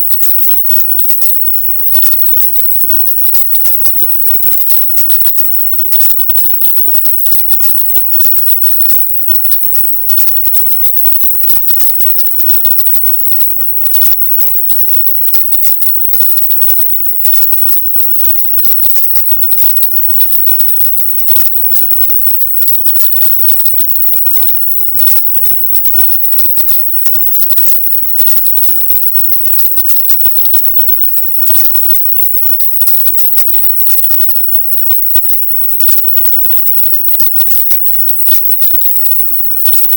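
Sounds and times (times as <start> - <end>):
high-pitched crackling hiss: 0.0 - 39.9.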